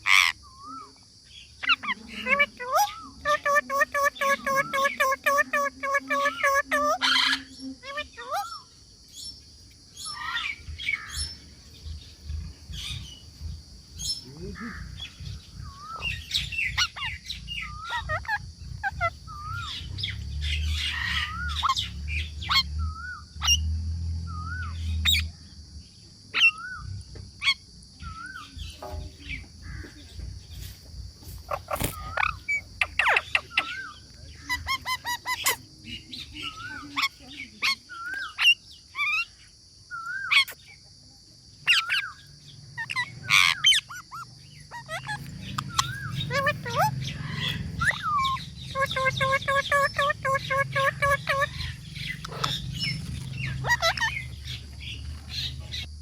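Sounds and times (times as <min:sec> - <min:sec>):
parrot squawking: 0:01.6 - 0:08.6, 0:15.7 - 0:19.8, 0:42.8 - 0:54.7.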